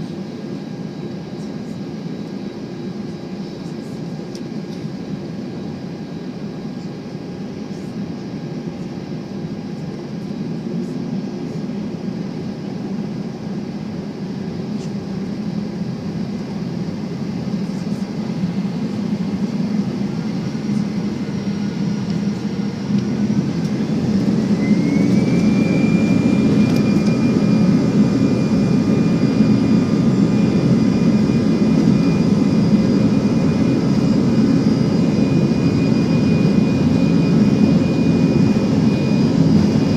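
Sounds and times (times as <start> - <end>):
high engine whine: 0.0 - 39.9
jet engine rush in cabin: 0.0 - 39.9.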